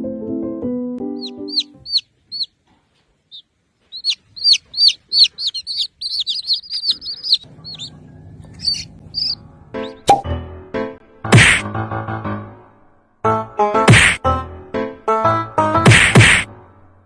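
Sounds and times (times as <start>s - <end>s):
small bird chirping: 1.2s - 10.1s.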